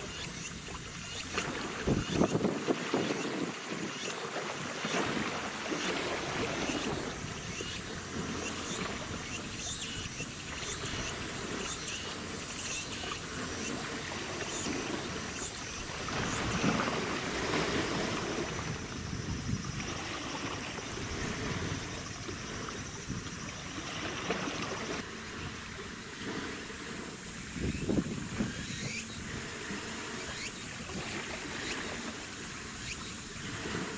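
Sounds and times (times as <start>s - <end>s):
wind noise: 1.5s - 3.9s, 15.9s - 24.5s, 27.2s - 30.0s.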